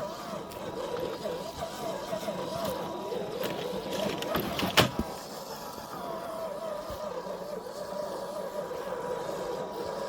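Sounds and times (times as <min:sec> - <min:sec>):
electric motor and gears whining: 0:00.0 - 0:10.0.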